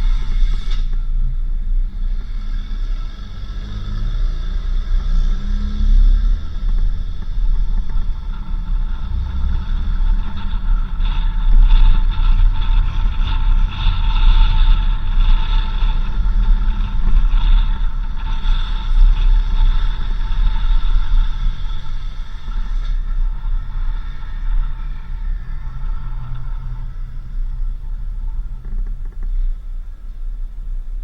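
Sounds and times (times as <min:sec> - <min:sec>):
off-road vehicle driving on dirt: 0:00.0 - 0:31.0.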